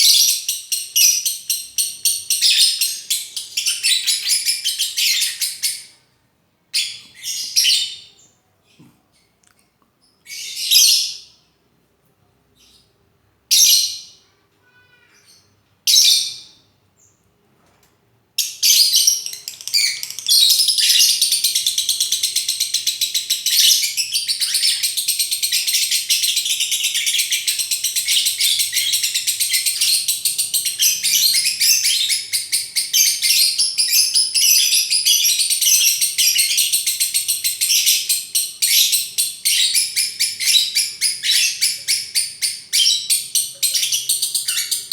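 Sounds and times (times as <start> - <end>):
lovebird chattering song: 18.4 - 44.9.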